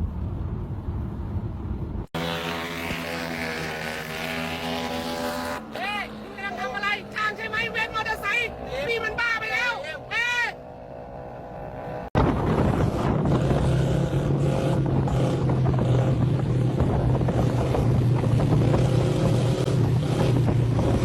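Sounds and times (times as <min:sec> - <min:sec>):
engine drone: 0:00.0 - 0:21.0
wind rushing over microphone: 0:10.9 - 0:21.0.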